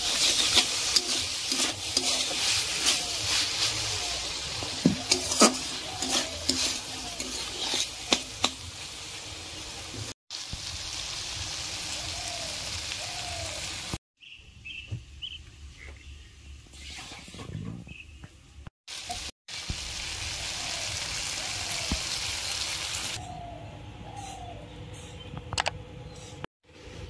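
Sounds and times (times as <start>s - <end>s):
spatula scraping and knocking pan: 0.0s - 8.8s
curry sizzling in a pan: 0.0s - 14.0s, 18.9s - 23.2s.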